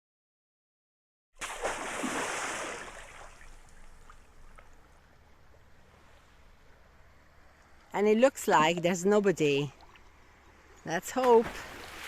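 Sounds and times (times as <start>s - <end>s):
sea water washing on shore: 1.5s - 4.2s.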